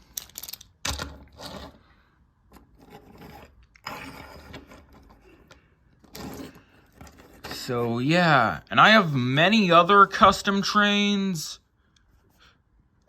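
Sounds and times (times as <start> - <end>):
scraping and rubbing: 1.1 - 8.0.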